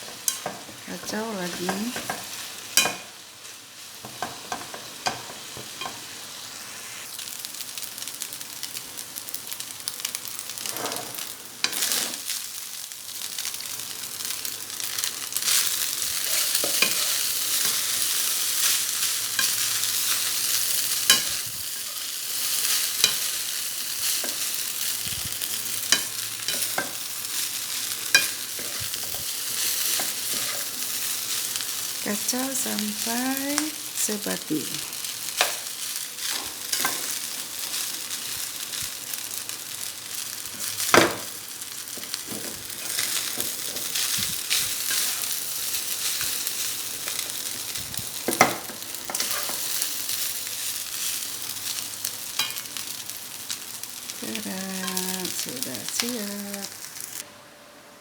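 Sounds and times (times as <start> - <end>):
rice sizzling in a pan: 0.0 - 57.3
spatula scraping a pan: 10.6 - 12.3, 49.1 - 49.6.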